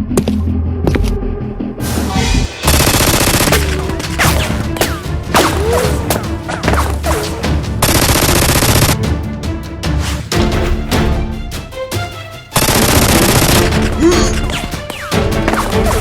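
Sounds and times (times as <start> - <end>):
background music: 0.0 - 16.0
gunfire bursts: 2.6 - 4.6, 7.8 - 9.0, 12.6 - 15.2.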